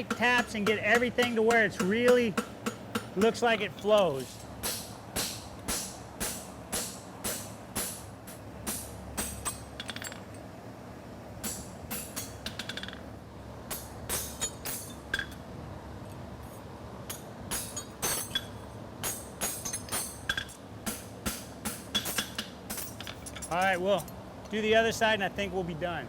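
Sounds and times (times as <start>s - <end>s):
hammer tapping horseshoe on anvil: 0.0s - 8.1s, 8.7s - 10.2s, 11.4s - 13.0s, 13.7s - 15.4s, 17.1s - 24.6s
low fan hum: 0.0s - 12.5s, 13.1s - 26.0s.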